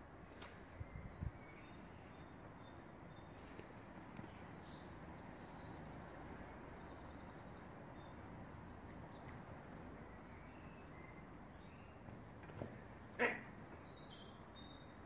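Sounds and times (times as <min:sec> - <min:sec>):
outdoor background hiss: 0:00.0 - 0:15.0
faint bird chirps: 0:00.5 - 0:09.4.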